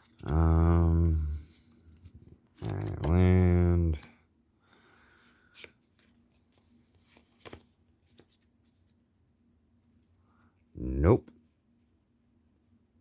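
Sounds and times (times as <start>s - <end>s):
cards rustling: 0.0s - 4.2s, 5.0s - 9.1s.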